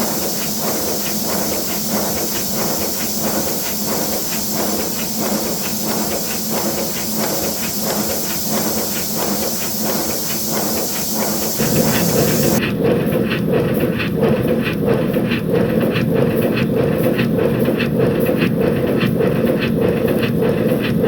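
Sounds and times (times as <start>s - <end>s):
steam hissing: 0.0s - 12.6s
steam locomotive exhaust beats: 0.0s - 12.6s.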